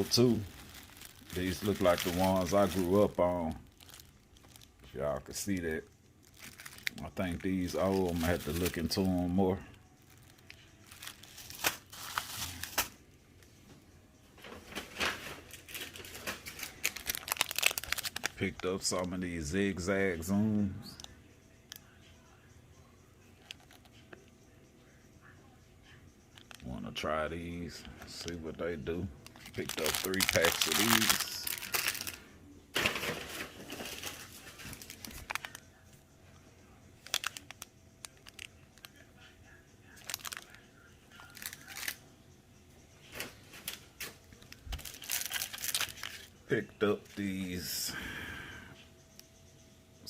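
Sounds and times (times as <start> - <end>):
wrappers and boxes rustling: 0.0 - 13.0, 14.4 - 19.2, 27.7 - 32.2, 32.8 - 35.6, 37.0 - 38.5, 40.0 - 40.6, 41.2 - 42.0, 43.1 - 46.3.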